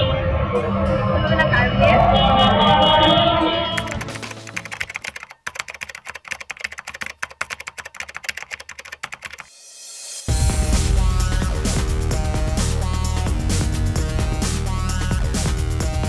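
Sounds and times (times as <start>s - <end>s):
music: 0.0s - 4.9s, 9.4s - 16.0s
keyboard key clicks: 3.8s - 9.4s.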